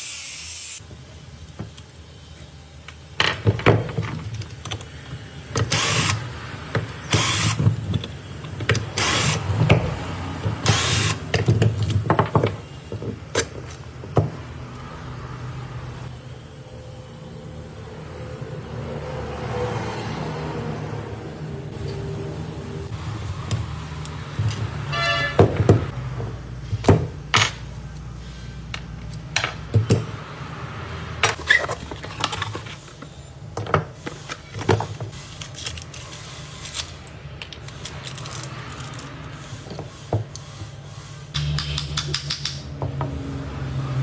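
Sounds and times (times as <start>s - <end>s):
hard objects knocking and rattling: 3.2s - 5.8s, 9.5s - 14.5s, 23.5s - 27.9s.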